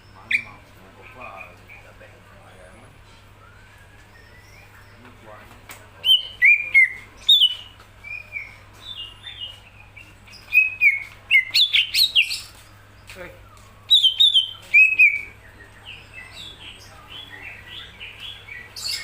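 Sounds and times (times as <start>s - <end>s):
bird singing whistled notes: 3.4s - 5.1s, 6.0s - 19.0s.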